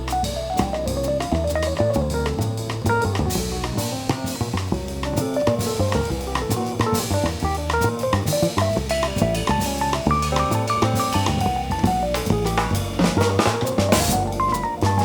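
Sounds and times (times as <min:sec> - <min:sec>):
drum kit with cymbals and snare: 0:00.0 - 0:15.0
moving bass line: 0:00.0 - 0:15.0.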